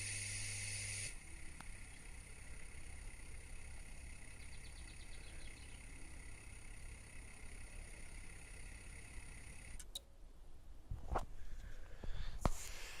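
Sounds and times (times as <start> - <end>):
lift motor whining: 0.0 - 9.9
clicks: 9.7 - 10.1.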